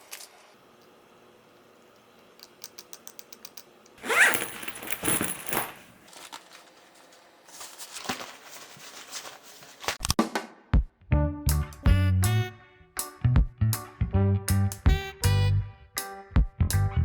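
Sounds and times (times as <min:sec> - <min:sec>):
rustling: 0:04.0 - 0:10.0
clatter of small hard objects: 0:04.3 - 0:06.8.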